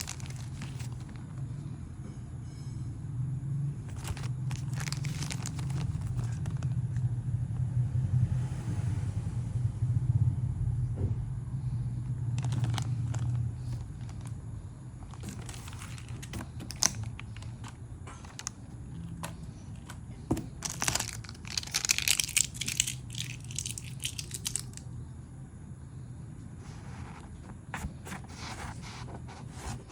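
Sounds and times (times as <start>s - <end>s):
plastic wrap crinkling: 0.0s - 1.2s, 3.9s - 6.8s, 12.4s - 14.4s, 15.0s - 24.8s.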